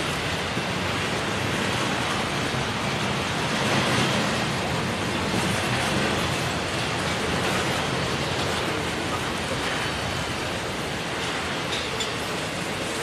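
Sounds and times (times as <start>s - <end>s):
steel wheels on rails: 0.0s - 13.0s.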